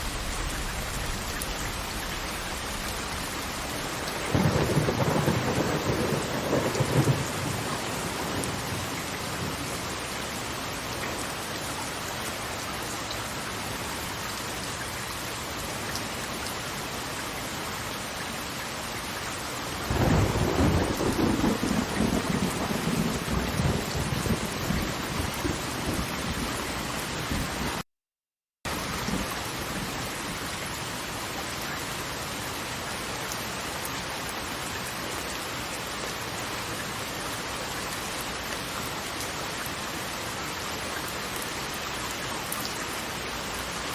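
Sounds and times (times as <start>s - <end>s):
thunder rolling: 0.0s - 9.6s, 19.9s - 26.6s
rushing water hiss: 0.0s - 22.2s.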